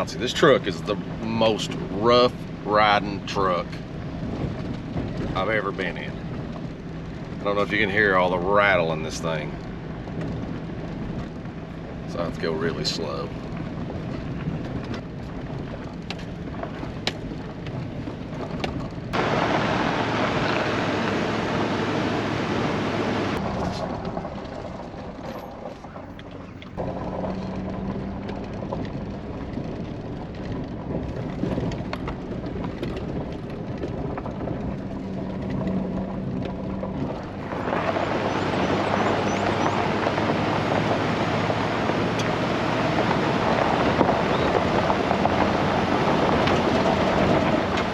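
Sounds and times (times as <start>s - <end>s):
truck engine running: 0.0s - 47.9s
tyres on rocky dirt road: 0.0s - 47.9s
truck body rattling: 13.1s - 20.6s, 23.4s - 47.9s.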